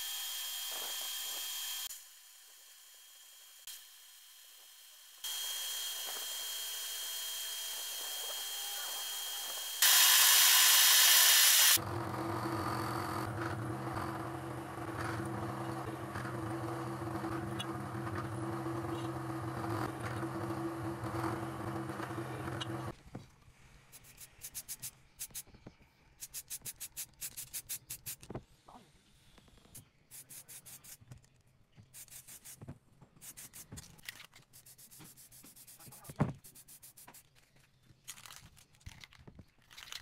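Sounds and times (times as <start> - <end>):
motor hum: 0.0 - 22.9
power tool high-pitched whine: 0.0 - 22.9
loud hiss: 9.8 - 11.8.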